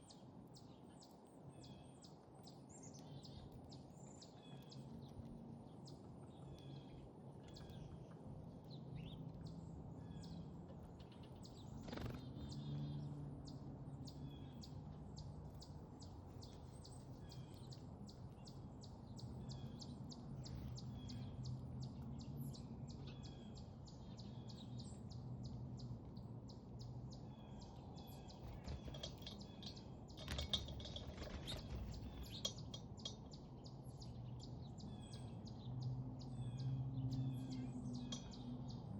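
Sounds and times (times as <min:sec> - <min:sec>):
songbirds chirping: 0:00.0 - 0:38.9
low background rumble: 0:06.3 - 0:35.7.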